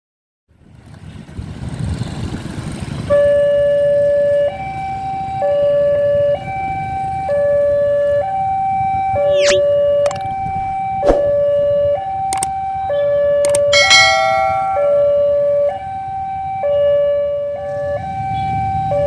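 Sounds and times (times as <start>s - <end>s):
level crossing two-tone alarm: 11.4s - 17.2s.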